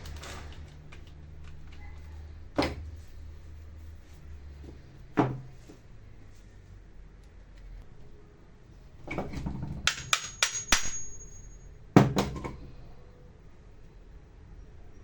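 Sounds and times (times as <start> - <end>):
metal tools knocking on workbench: 9.5 - 11.5.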